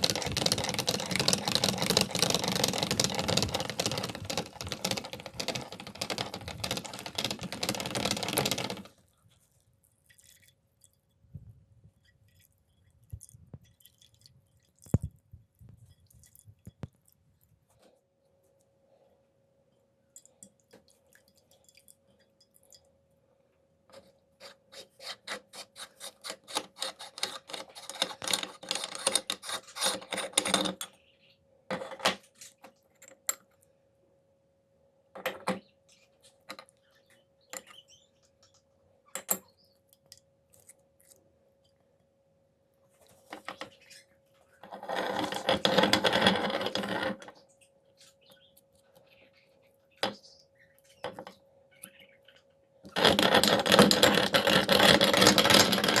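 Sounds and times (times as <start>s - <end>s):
meat grinder crunching: 0.0s - 8.8s.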